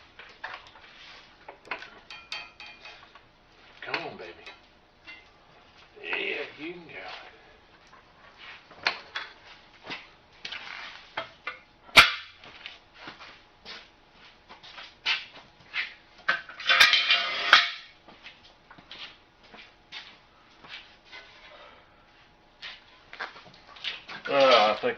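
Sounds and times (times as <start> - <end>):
metal tools clicking and knocking: 1.5 - 3.1, 3.9 - 5.3
sharp metal clank: 12.0 - 12.4.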